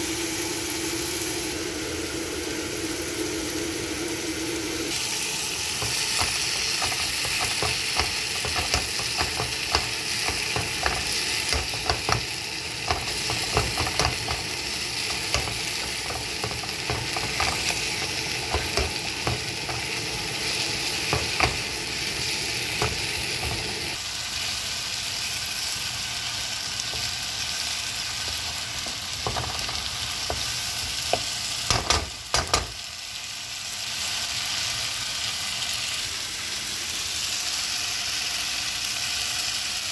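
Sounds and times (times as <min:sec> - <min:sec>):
onion and tomato sizzling: 0:00.0 - 0:39.9
spatula scraping and tapping pan: 0:05.8 - 0:20.1, 0:20.8 - 0:21.9, 0:22.7 - 0:23.8.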